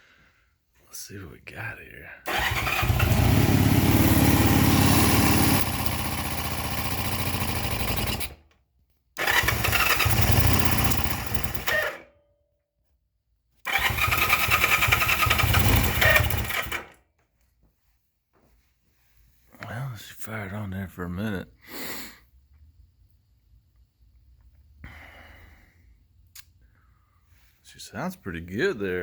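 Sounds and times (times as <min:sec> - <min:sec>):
motorcycle engine running: 0:02.3 - 0:08.3, 0:09.2 - 0:11.8, 0:13.7 - 0:16.8.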